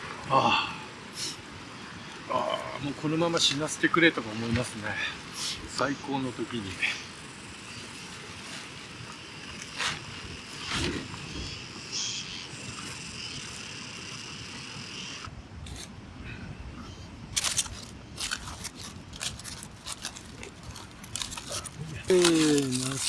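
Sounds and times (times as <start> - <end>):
steady outdoor hiss: 0.0 - 23.0
campfire crackling and clicking: 17.4 - 23.0.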